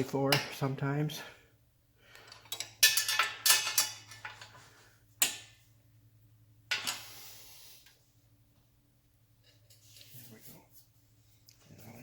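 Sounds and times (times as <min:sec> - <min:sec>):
metal tools clinking: 0:02.2 - 0:04.6.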